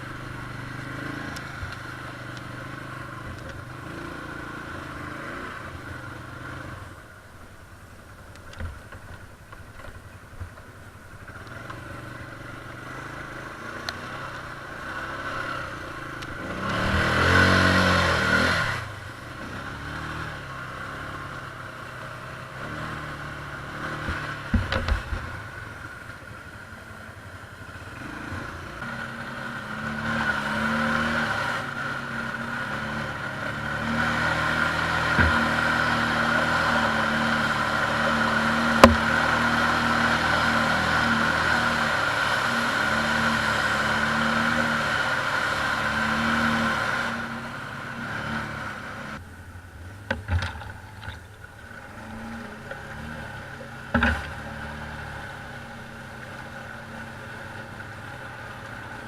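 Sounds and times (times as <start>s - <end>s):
atv engines running: 0.0s - 59.0s
sharp clunks: 38.8s - 39.1s.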